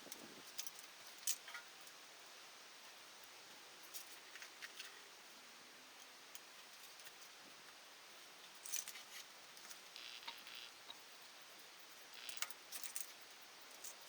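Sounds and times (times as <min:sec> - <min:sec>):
soft hiss: 0:00.0 - 0:14.0
faint clicks and rustles: 0:02.8 - 0:14.0.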